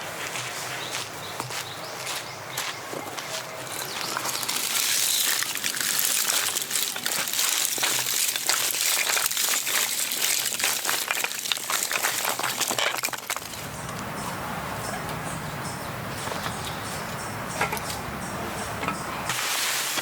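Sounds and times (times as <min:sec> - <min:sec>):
dense irregular crackling: 0:03.6 - 0:14.0.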